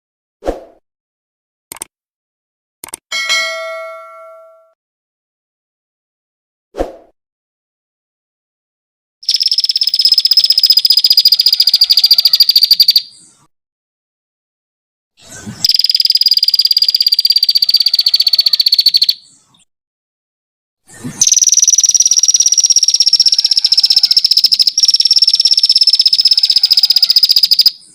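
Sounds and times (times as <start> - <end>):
songbird fast trills: 9.2 - 13.2, 15.6 - 19.2, 21.2 - 27.9.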